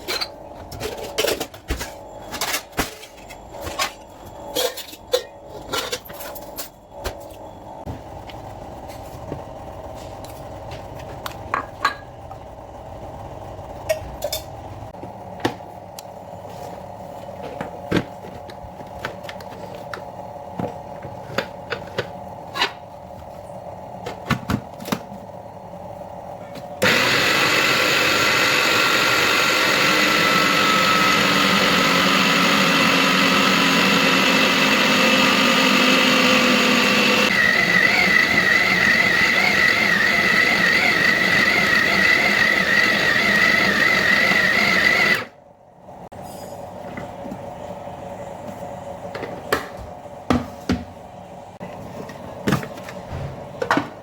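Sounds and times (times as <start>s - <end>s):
kitchen utensils clinking: 0.0s - 6.8s
electric blender whining: 26.8s - 45.3s.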